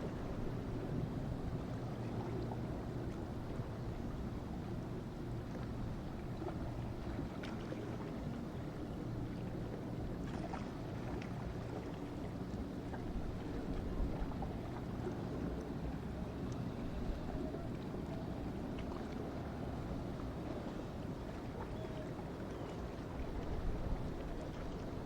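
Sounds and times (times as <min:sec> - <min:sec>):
wind on microphone: 0:13.0 - 0:15.2, 0:22.8 - 0:25.0.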